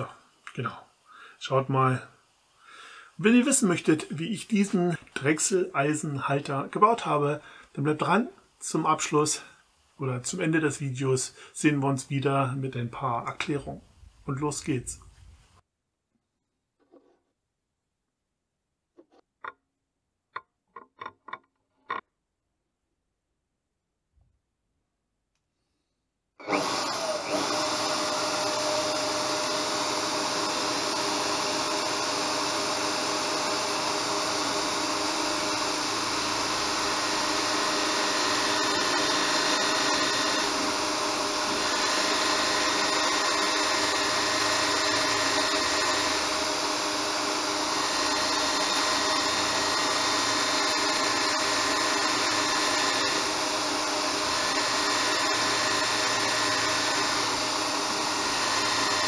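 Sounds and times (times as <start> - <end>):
turning tool cutting wood: 26.4 - 59.0
wood lathe running: 26.4 - 59.0.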